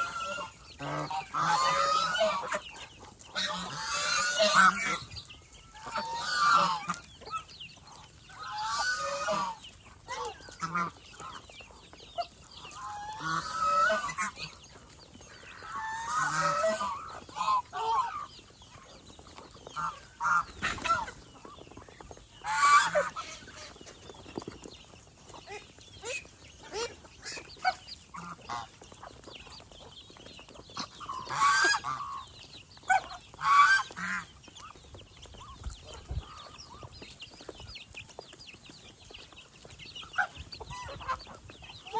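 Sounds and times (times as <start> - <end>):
geese honking: 0.0 - 11.5, 12.6 - 14.6, 15.3 - 18.3, 19.7 - 21.2, 22.4 - 23.8, 26.0 - 29.0, 30.8 - 34.3
fowl calls and clucks: 0.0 - 41.9.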